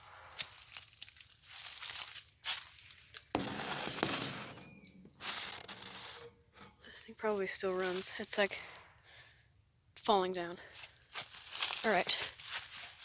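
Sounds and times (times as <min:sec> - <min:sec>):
rustling and crunching: 0:00.0 - 0:09.4, 0:10.7 - 0:13.0
scraping rustle: 0:00.3 - 0:08.7
sharp knock: 0:03.4 - 0:04.8.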